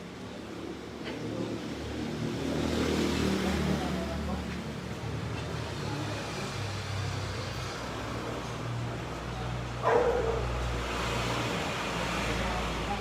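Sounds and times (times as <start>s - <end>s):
dog barking: 9.8s - 10.6s.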